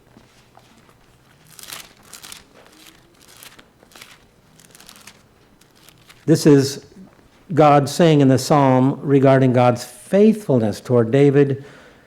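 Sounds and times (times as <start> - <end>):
book pages rustling: 0.2 - 6.3.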